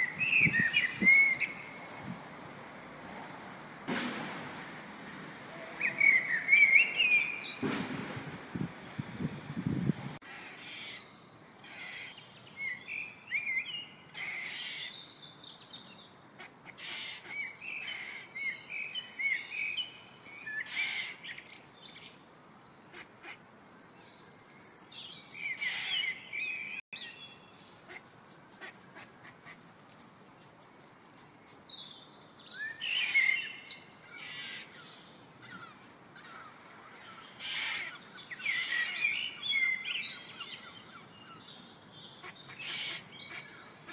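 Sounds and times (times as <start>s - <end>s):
birds singing and chirping: 0.0s - 2.1s, 5.5s - 7.8s, 10.2s - 28.0s, 31.1s - 43.9s.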